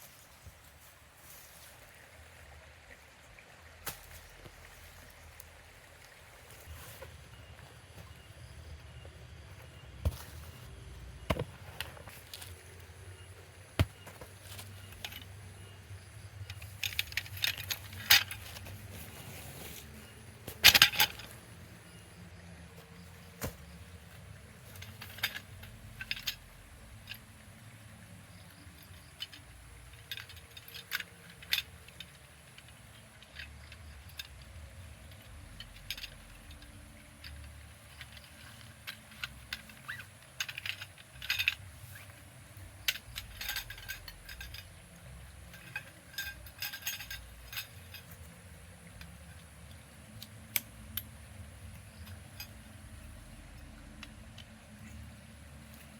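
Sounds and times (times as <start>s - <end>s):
faint steady hiss: 0.0s - 55.9s
small hard objects clinking: 42.8s - 48.3s.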